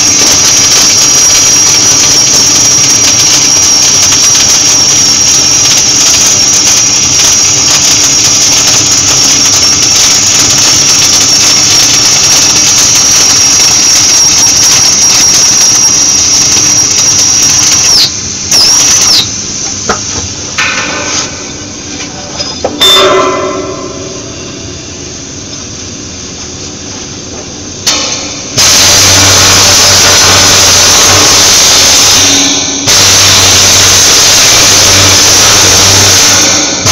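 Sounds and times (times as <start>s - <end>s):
welding arc whining: 0.0s - 26.3s, 27.7s - 36.9s
sharp knock: 22.6s - 24.9s.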